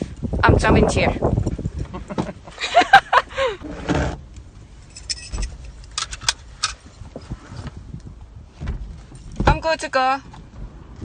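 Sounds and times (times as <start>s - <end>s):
metallic clicks and jingles: 4.8s - 6.8s.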